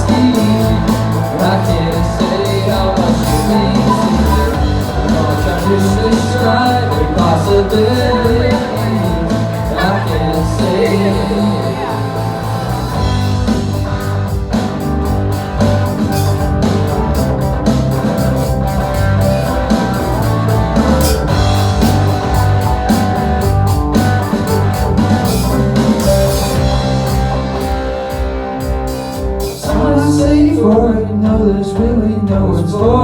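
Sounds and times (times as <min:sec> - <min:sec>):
drum kit beat: 0:00.0 - 0:33.0
guitar chords: 0:00.0 - 0:33.0.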